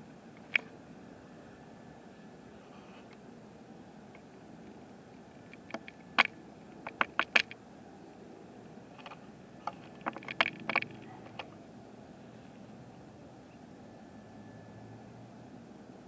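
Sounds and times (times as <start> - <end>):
steady low hiss: 0.0 - 16.0
sharp clicks and taps: 5.5 - 7.6, 9.0 - 11.5.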